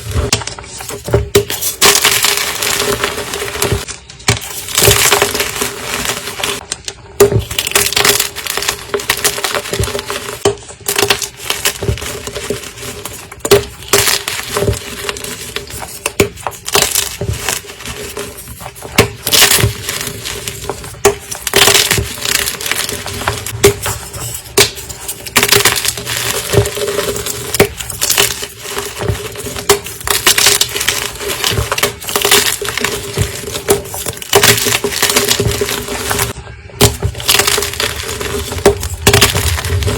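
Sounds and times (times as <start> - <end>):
chalk crunching and crumbling: 0.0 - 39.9.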